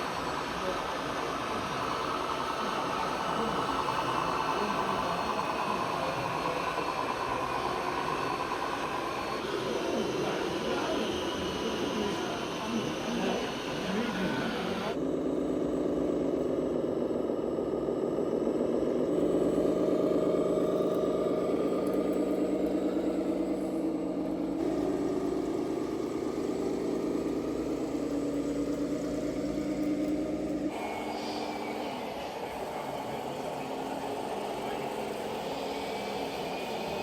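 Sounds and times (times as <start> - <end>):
rc trucks running: 0.0 - 37.0.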